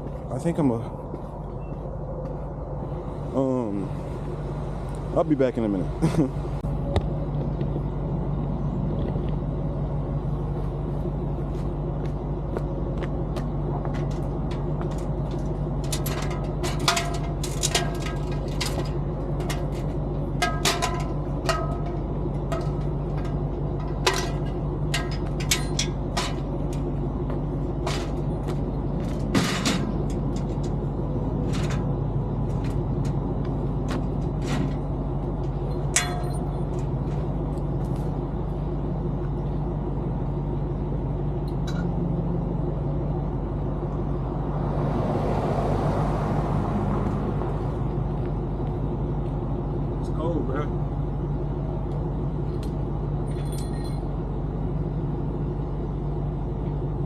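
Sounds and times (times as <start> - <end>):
vehicle engine idling: 0.0 - 57.0
sharp clanks and knocks: 12.0 - 38.1, 41.5 - 42.0, 52.6 - 54.1.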